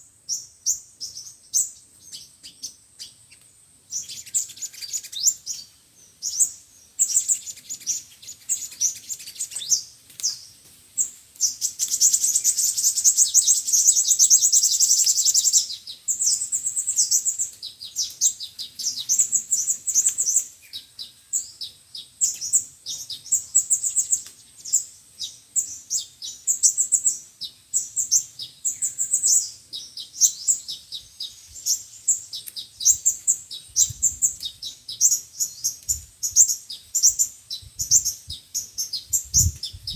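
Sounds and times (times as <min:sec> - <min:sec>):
sunbirds chirping: 0:00.0 - 0:39.9.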